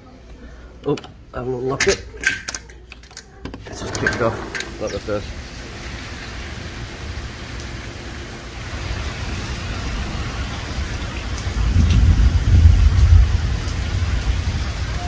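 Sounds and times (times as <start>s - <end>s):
heavy rain pouring: 3.7s - 15.0s.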